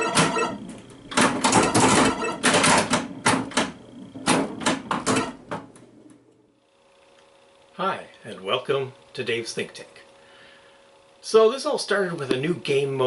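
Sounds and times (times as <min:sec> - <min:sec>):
pinball machine clattering: 0:00.0 - 0:06.2.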